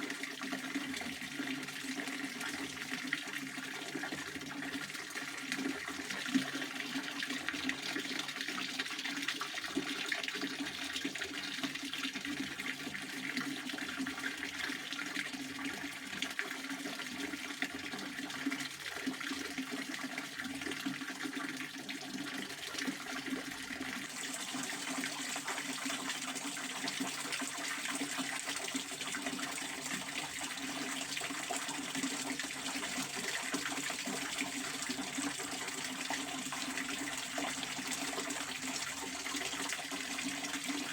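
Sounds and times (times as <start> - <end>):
fountain water splashing: 24.0 - 28.1.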